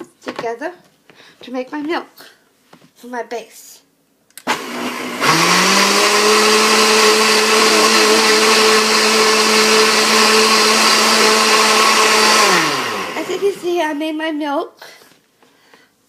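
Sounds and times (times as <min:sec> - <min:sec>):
blender motor running: 0:04.4 - 0:13.8.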